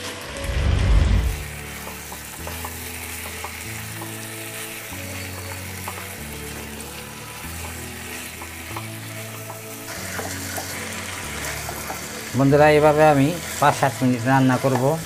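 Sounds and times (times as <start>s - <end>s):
spatula scraping a wok: 0.0s - 12.3s
food sizzling in hot oil: 0.0s - 15.0s.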